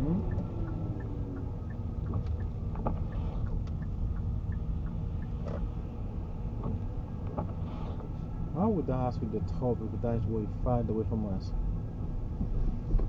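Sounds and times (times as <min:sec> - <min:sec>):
faint regular ticking: 0:00.0 - 0:05.4
engine and road rumble: 0:00.0 - 0:13.0.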